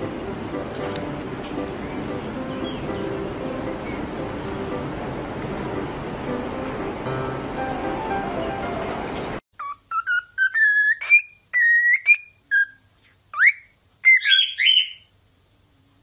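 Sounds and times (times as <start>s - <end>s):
cockatiel whistling: 9.6s - 15.1s.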